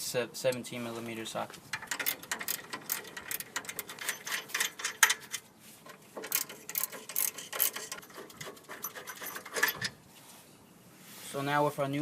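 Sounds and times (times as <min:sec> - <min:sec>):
hand ratchet clicking: 0:01.7 - 0:05.5, 0:06.2 - 0:09.9.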